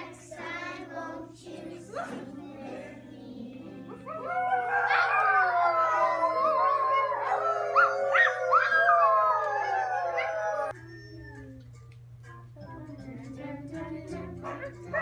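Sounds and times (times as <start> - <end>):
dog-like howls: 4.0 - 10.8.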